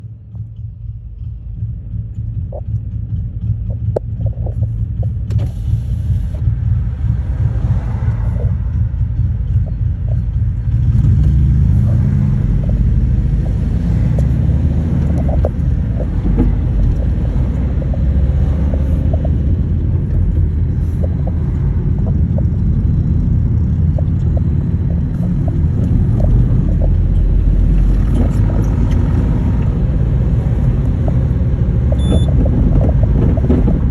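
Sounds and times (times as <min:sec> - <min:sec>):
motorcycle engine rumbling: 0:00.0 - 0:33.9.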